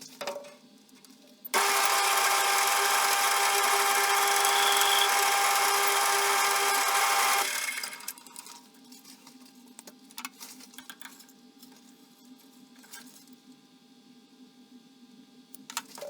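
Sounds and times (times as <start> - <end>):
metal lathe whining: 1.6 - 8.2.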